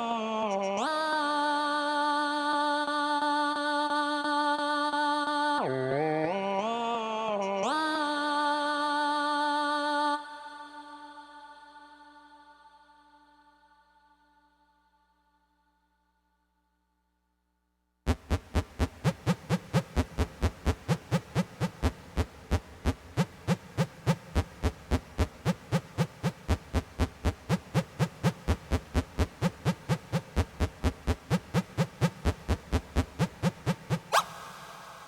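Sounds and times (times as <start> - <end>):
synth playing fast short notes: 33.3 - 35.0
rising synth sweep: 33.5 - 35.0.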